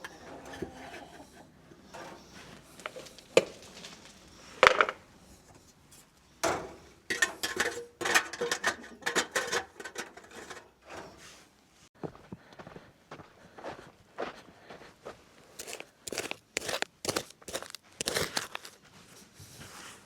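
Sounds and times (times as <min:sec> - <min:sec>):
clattering and rustling: 0:06.4 - 0:11.4
objects knocking: 0:07.1 - 0:10.6.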